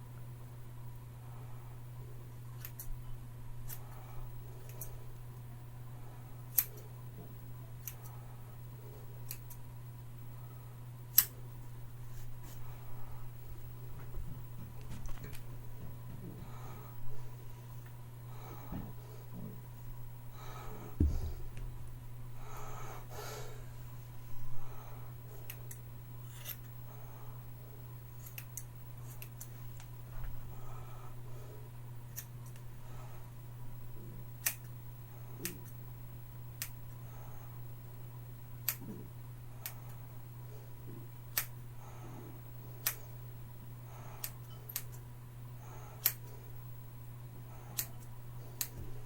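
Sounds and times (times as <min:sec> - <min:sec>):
steady low hum: 0:00.0 - 0:49.0
scissors snipping hair: 0:02.6 - 0:03.0, 0:06.5 - 0:06.8, 0:07.8 - 0:08.1, 0:09.2 - 0:09.6, 0:11.1 - 0:11.4, 0:25.5 - 0:26.7, 0:28.2 - 0:29.9, 0:32.1 - 0:32.6, 0:34.4 - 0:34.7, 0:36.6 - 0:36.8, 0:38.6 - 0:38.9, 0:41.3 - 0:41.6, 0:42.8 - 0:43.0, 0:44.2 - 0:45.0, 0:46.0 - 0:46.3, 0:47.7 - 0:48.8.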